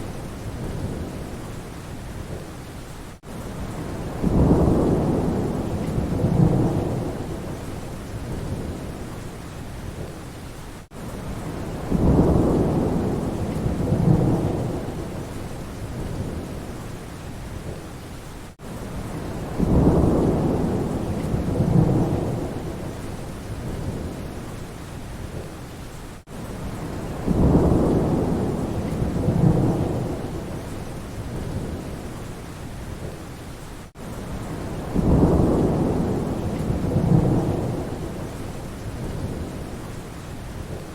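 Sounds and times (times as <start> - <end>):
steady rain: 0.0 - 40.9
low rolling thunder: 3.6 - 9.2, 11.3 - 16.8, 19.0 - 24.5, 26.5 - 32.1, 34.3 - 39.9.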